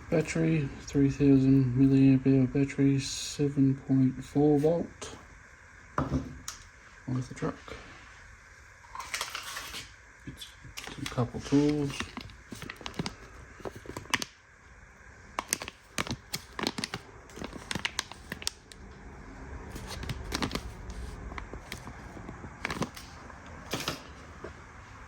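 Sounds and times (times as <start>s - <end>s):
packaging rustling: 10.8s - 14.4s, 15.4s - 18.8s, 19.6s - 24.4s.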